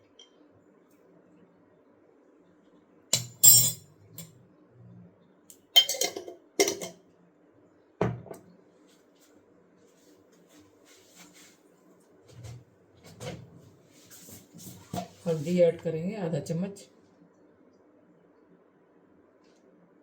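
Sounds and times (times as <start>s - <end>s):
dishes and utensils clattering: 3.2s - 3.8s, 5.8s - 7.0s.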